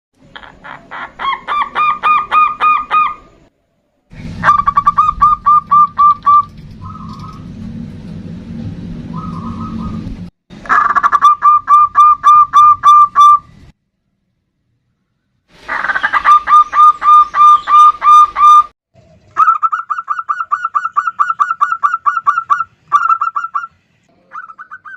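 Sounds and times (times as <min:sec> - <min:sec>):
low steady hum: 0:03.4 - 0:12.4
dove cooing: 0:04.4 - 0:07.4.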